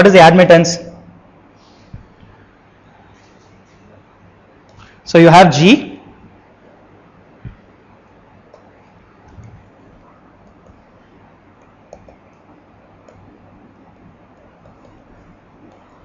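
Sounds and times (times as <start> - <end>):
pen clicks and taps writing: 11.6 - 12.2, 14.3 - 15.0.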